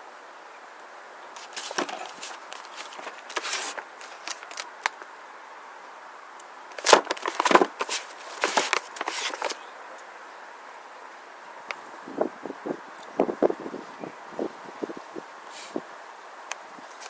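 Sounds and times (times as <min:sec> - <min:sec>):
packaging rustling and knocking: 0:01.4 - 0:04.6, 0:06.8 - 0:09.6.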